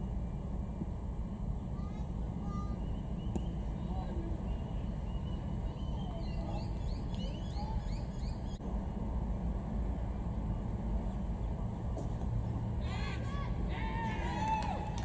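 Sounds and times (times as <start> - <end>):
steady low rumble: 0.0 - 15.0
birds chirping: 1.5 - 8.6.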